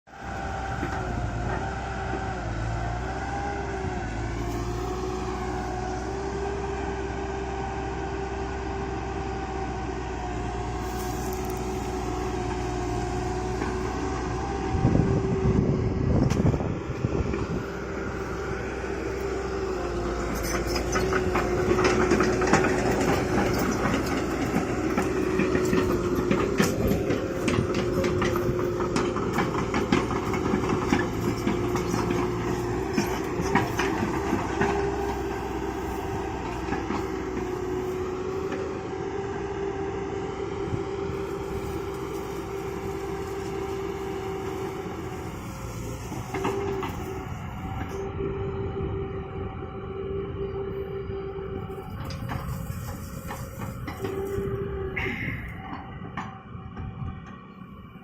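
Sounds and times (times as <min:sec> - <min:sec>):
excavator diesel engine whining: 0:00.1 - 0:58.0
metallic clanking and rattling: 0:20.2 - 0:38.0.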